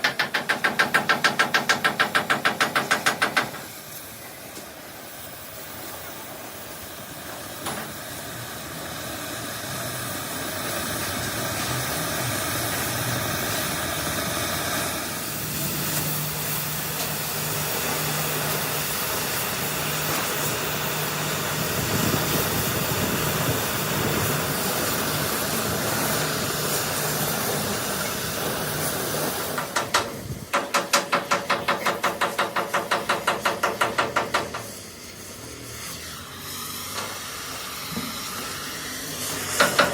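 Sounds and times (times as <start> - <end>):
hammer strikes on metal: 0.0 - 3.8, 29.6 - 34.8, 39.6 - 39.9
steady hiss: 0.0 - 39.9.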